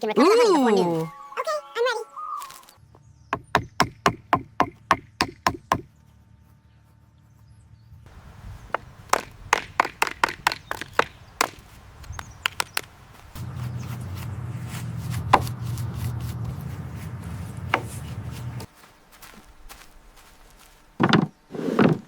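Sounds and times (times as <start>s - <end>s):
sharp knocks: 3.4s - 5.9s, 8.7s - 12.9s, 17.7s - 18.7s.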